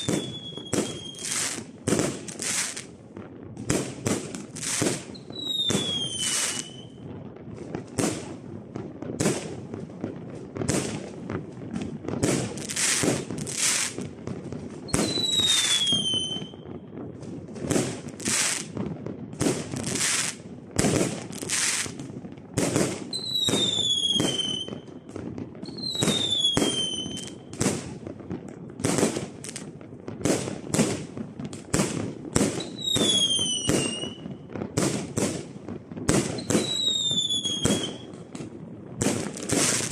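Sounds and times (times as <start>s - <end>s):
falling firework whistle: 0.0s - 2.9s, 4.0s - 7.1s, 14.9s - 16.9s, 23.0s - 25.0s, 25.6s - 27.8s, 32.4s - 34.6s, 36.1s - 38.2s, 39.0s - 39.9s.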